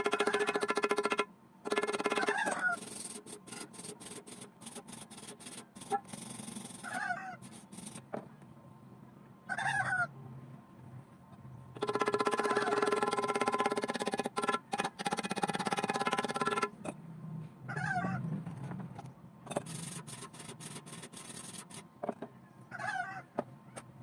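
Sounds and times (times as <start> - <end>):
chicken calling: 2.2 - 2.8, 6.8 - 7.5, 9.5 - 10.1, 17.7 - 18.3, 22.7 - 23.4.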